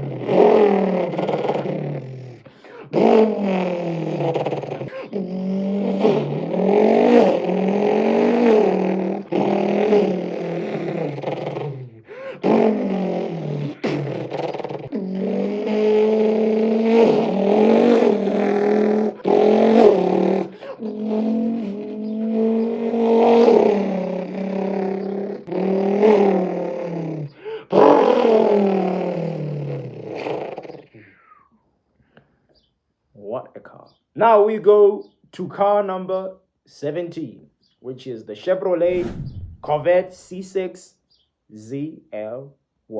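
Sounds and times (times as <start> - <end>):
man imitating engine with mouth: 0.0 - 31.5, 38.8 - 40.4.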